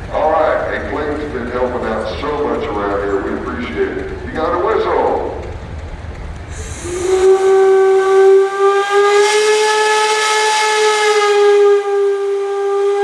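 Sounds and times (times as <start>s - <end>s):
steam whistle blast: 6.5s - 13.0s.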